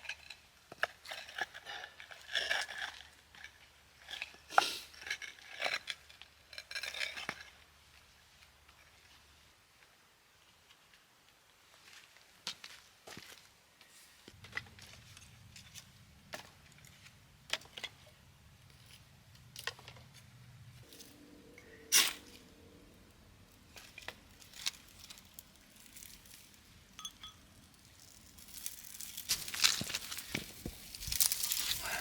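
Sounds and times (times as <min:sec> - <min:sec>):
crinkling rustling: 0:23.9 - 0:32.0.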